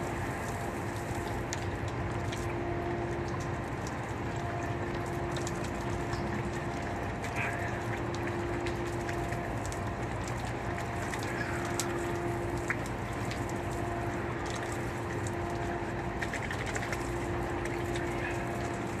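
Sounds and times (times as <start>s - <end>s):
steady hum: 0.0s - 19.0s
water dripping ticks: 0.0s - 19.0s
falling water rushing: 4.7s - 19.0s.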